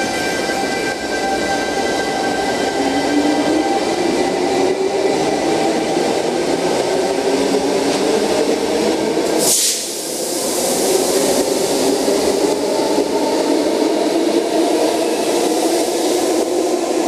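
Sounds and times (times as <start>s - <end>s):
air hiss: 9.2s - 12.2s.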